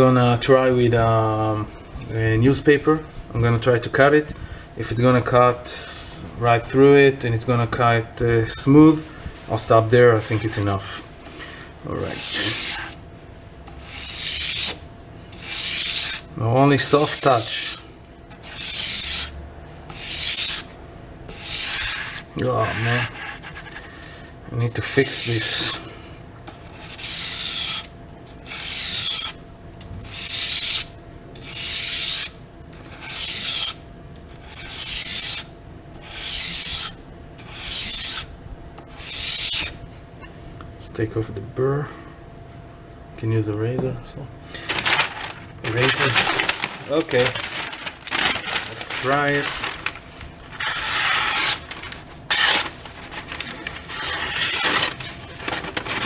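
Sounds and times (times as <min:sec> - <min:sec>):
knife honing strokes: 0:12.0 - 0:13.0, 0:13.7 - 0:16.3, 0:18.4 - 0:19.3, 0:26.5 - 0:29.4, 0:30.0 - 0:33.8, 0:34.4 - 0:38.3, 0:50.6 - 0:51.7, 0:52.3 - 0:55.3
knife slicing through newspaper: 0:15.4 - 0:16.2, 0:18.4 - 0:19.3, 0:44.7 - 0:56.0.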